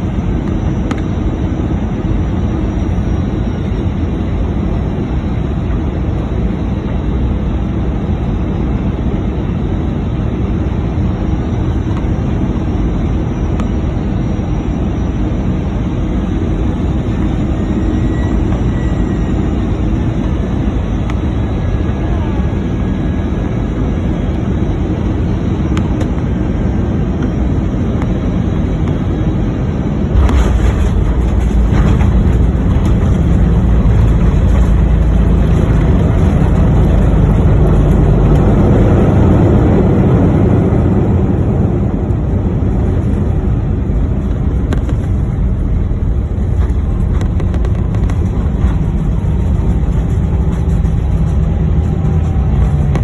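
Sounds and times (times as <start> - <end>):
landing rollout rumble: 30.1 - 40.2, 42.8 - 53.0
airplane touchdown thump: 30.2 - 37.1.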